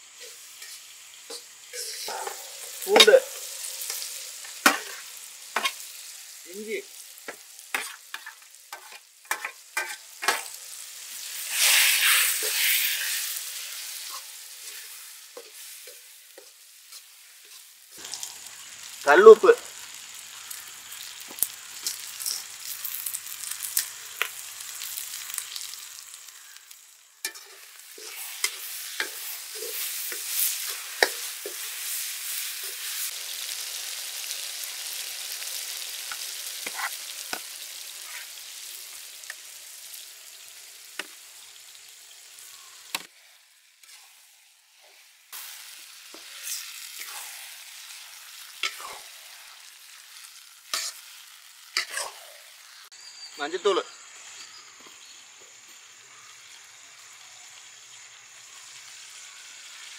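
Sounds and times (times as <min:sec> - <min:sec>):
oil sizzling in a pan: 0:00.0 - 0:59.9.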